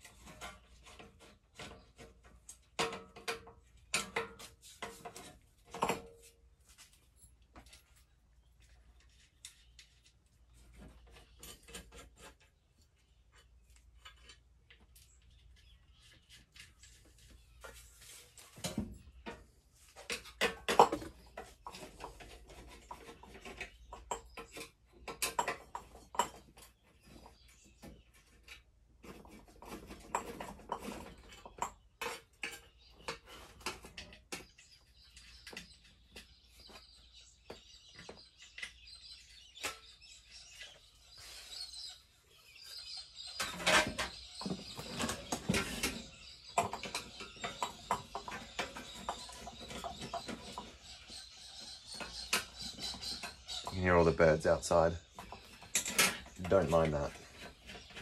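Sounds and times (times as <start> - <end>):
birds chirping and calling: 14.0 - 58.0.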